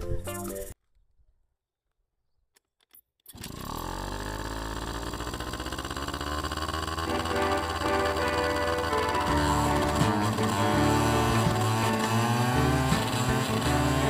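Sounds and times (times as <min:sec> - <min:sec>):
scooter engine starting and running: 0:03.3 - 0:14.0.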